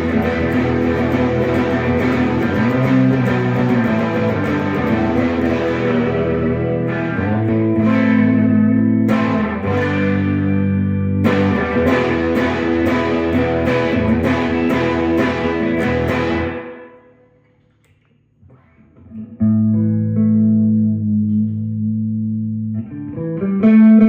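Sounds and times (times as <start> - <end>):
electric guitar chords ringing: 0.0 - 17.4, 18.6 - 24.0.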